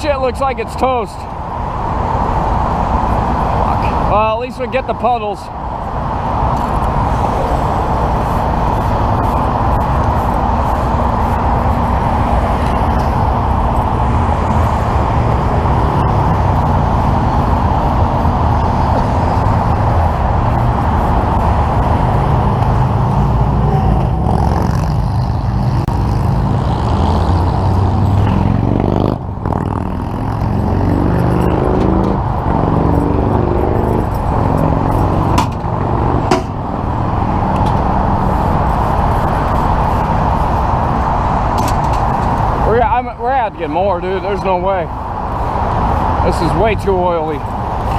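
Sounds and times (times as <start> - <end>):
freeway traffic noise: 0.0 - 47.9
engine pitch rising and falling: 12.1 - 38.3.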